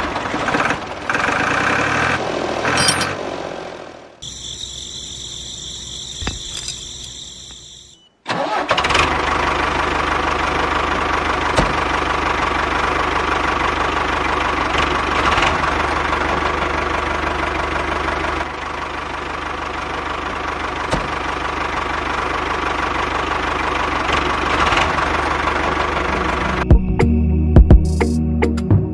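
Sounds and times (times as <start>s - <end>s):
faint high steady tones: 4.2s - 8.2s
small engine running: 4.2s - 26.6s.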